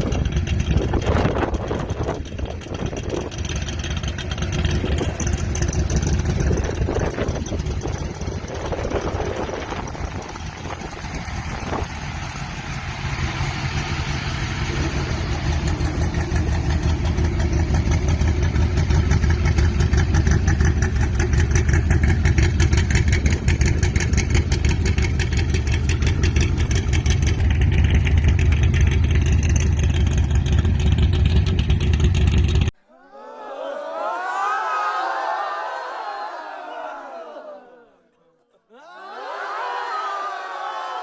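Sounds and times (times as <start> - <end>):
car engine running: 0.0 - 32.7.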